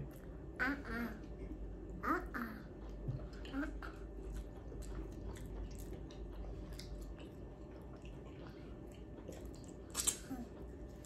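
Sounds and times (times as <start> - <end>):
low steady hum: 0.0 - 11.0
person chewing: 2.8 - 11.0.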